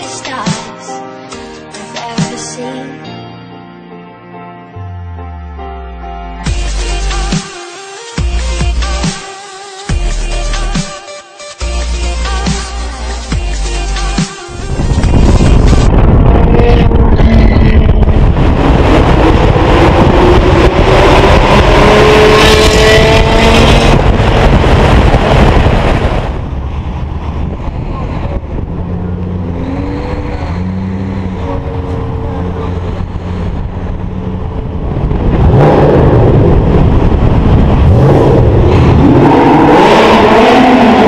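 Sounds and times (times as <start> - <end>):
car engine revving: 14.6 - 41.0.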